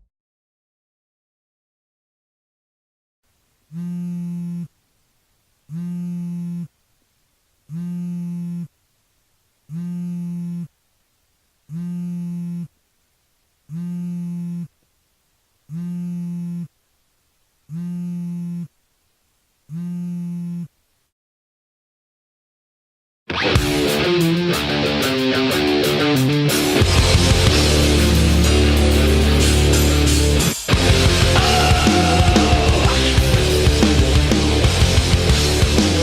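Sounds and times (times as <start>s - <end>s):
buzzing electronic tone pulses: 3.7s - 4.8s, 5.7s - 6.7s, 7.7s - 8.8s, 9.7s - 10.7s, 11.7s - 12.8s, 13.7s - 14.7s, 15.7s - 16.8s, 17.7s - 18.7s, 19.7s - 20.7s.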